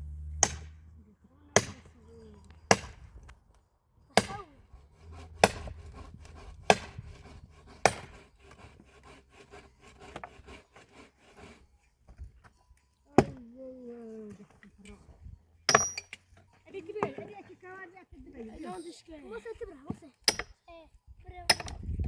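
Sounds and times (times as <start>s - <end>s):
axe chopping wood: 0.2s - 0.9s, 1.5s - 3.3s, 4.2s - 4.4s, 5.0s - 8.7s, 13.2s - 13.4s, 15.7s - 16.1s.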